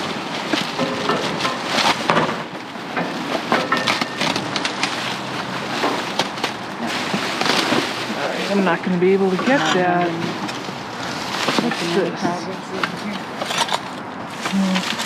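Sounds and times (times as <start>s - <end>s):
objects knocking and clattering: 0.0s - 8.2s
trash rustling: 0.0s - 15.0s.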